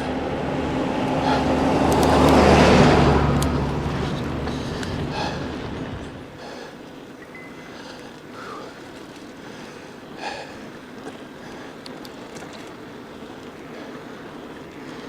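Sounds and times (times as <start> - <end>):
wind noise: 0.0 - 6.4
bike tyre noise: 0.0 - 15.0
bike clicks and rattles: 1.0 - 6.1, 7.7 - 15.0.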